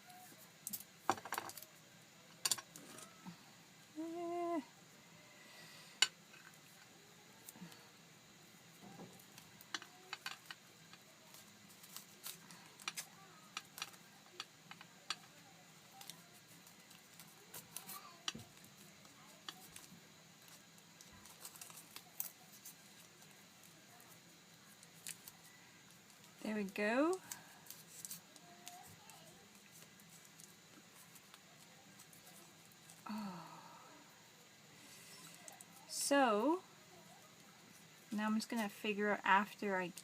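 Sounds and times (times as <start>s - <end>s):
wire and paper tape handling: 8.8s - 33.2s.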